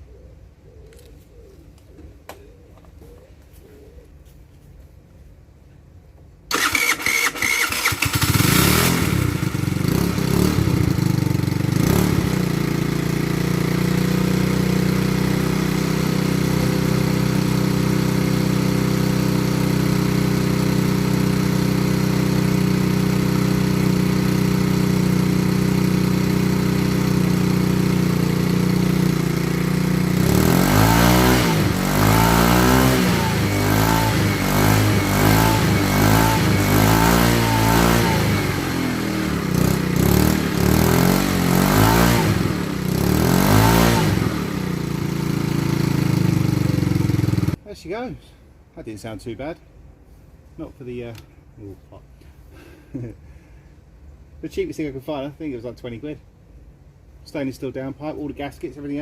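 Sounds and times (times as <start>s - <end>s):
moped engine idling: 6.5s - 32.2s, 32.8s - 43.3s, 44.0s - 47.6s
moped engine revving: 6.5s - 47.6s
moped engine starting: 6.5s - 47.6s.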